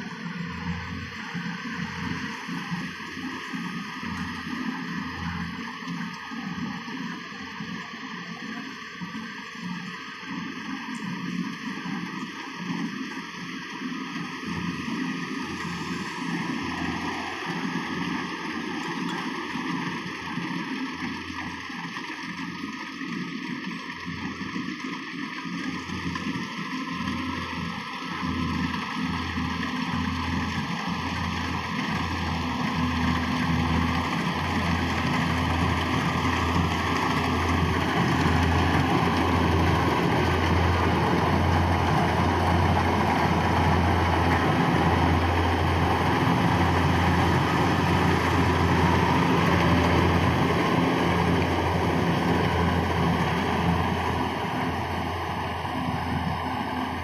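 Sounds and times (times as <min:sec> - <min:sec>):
harvester engine humming: 0:00.0 - 0:57.0
cutting and threshing machinery: 0:29.8 - 0:57.0.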